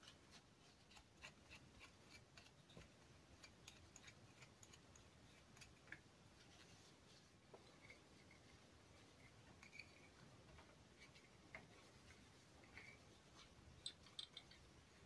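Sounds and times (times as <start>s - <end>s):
small clicks and taps: 13.8s - 14.7s.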